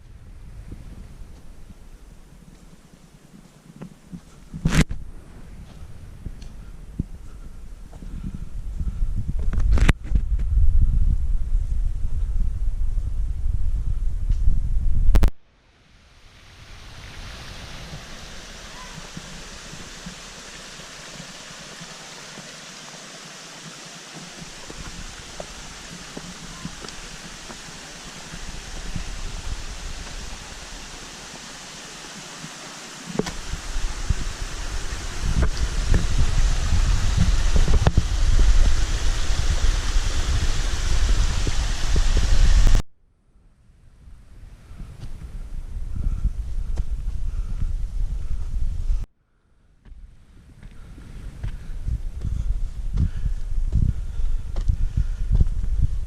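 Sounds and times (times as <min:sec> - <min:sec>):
wind buffeting microphone: 0:00.0 - 0:03.0, 0:04.1 - 0:15.3, 0:23.4 - 0:31.7, 0:33.2 - 0:42.8, 0:43.9 - 0:49.1, 0:49.9 - 0:56.0
forest stream running water: 0:15.5 - 0:42.8.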